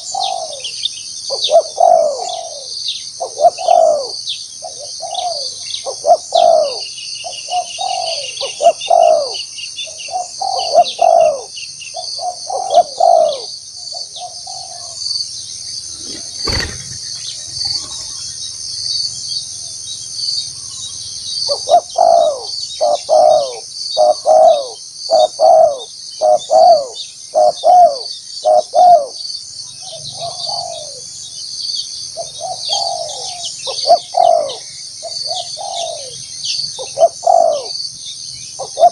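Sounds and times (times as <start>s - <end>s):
dove cooing: 0.0s - 15.0s, 15.8s - 18.4s, 21.5s - 29.2s, 29.9s - 31.1s, 32.2s - 36.2s, 36.8s - 37.8s, 38.6s - 38.9s
sharp knock: 15.9s - 18.1s.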